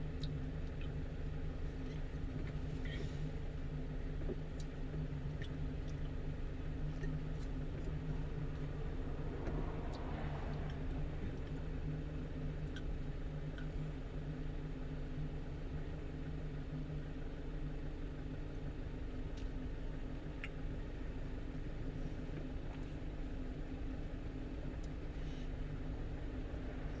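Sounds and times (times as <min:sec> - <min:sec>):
truck engine and road noise: 0:00.0 - 0:15.3, 0:19.3 - 0:27.0.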